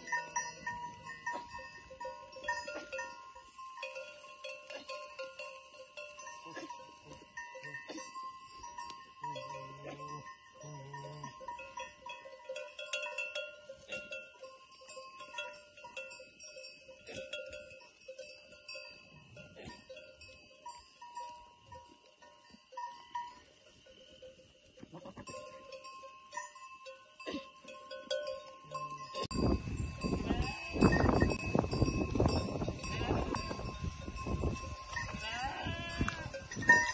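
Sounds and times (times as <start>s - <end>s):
sheep bells clinking: 0.0s - 36.9s.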